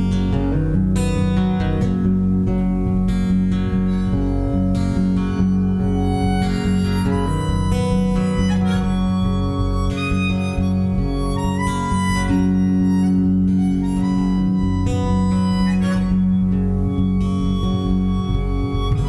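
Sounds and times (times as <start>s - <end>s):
guitar accompaniment: 0.0s - 19.0s
harmonica melody: 3.8s - 19.0s.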